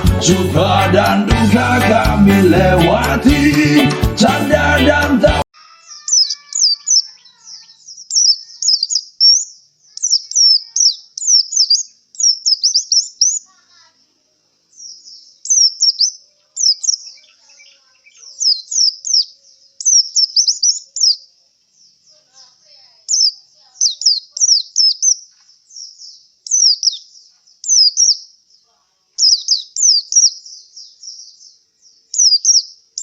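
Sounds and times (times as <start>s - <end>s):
bird singing high chirps: 5.6s - 13.8s, 14.7s - 33.0s.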